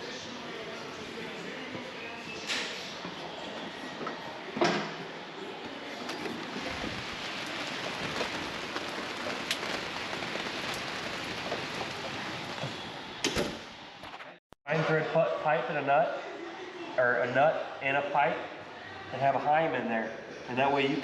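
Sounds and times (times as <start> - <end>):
heavy rain: 5.9 - 13.3.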